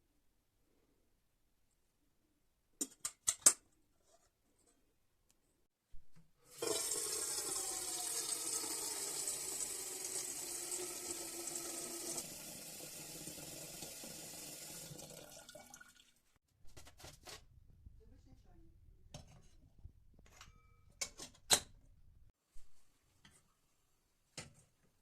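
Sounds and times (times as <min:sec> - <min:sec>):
tap water filling kettle: 0:06.5 - 0:16.2.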